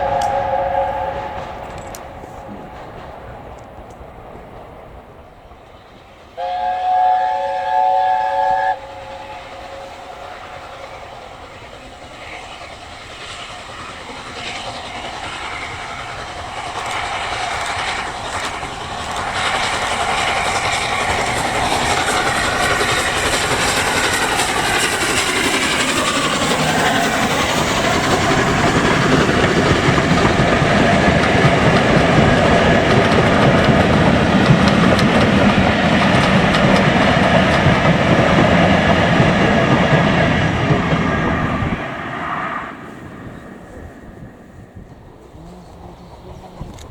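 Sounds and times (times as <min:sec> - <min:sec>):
train running noise: 0:00.0 - 0:46.9
train chime whistle blast: 0:06.4 - 0:10.3
wheels clacking over rail joints: 0:09.6 - 0:41.9.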